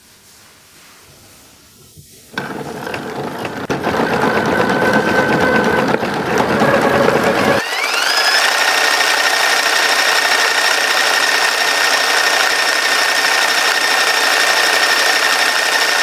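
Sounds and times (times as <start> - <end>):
wooden mechanism clattering: 2.4 - 7.6.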